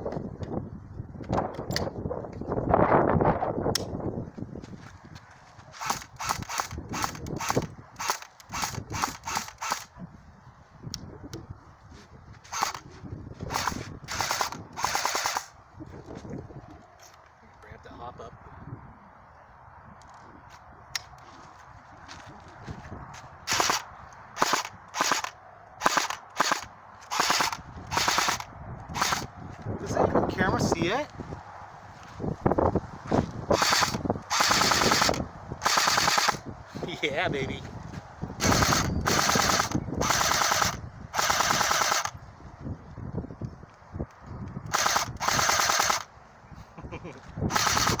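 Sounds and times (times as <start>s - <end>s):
airsoft gun rapid shots: 5.8s - 9.9s, 12.5s - 12.8s, 13.5s - 15.5s, 23.5s - 23.8s, 24.4s - 29.3s, 33.6s - 36.4s, 38.4s - 42.1s, 44.7s - 46.1s, 47.5s - 48.0s
airsoft gun shots: 24.4s - 28.4s, 33.6s - 36.4s.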